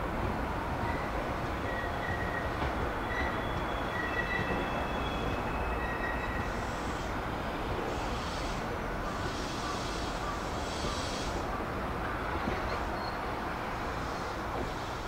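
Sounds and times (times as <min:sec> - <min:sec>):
electric train rumbling: 0:00.0 - 0:15.0
faint high squeals: 0:00.9 - 0:06.9.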